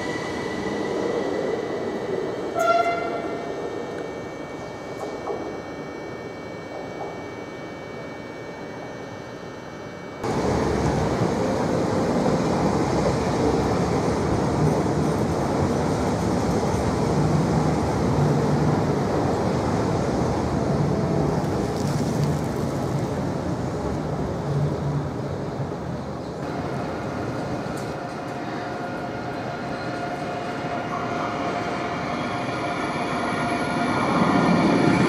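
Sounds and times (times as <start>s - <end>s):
train wheels rumbling on rails: 10.2s - 35.0s.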